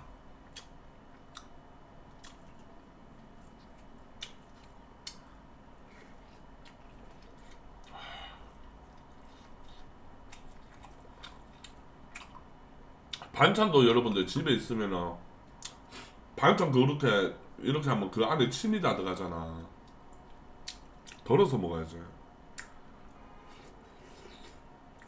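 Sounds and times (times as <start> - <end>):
person chewing: 0.4 - 12.5, 22.5 - 25.0.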